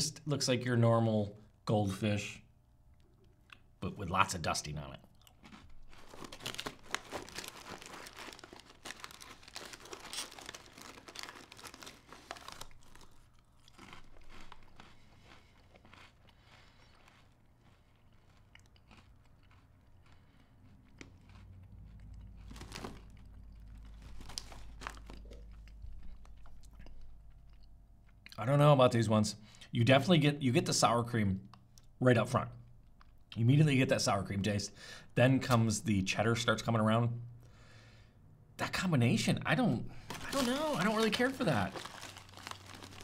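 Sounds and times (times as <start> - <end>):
crunchy crackers chewed: 4.6 - 28.4, 40.0 - 43.0.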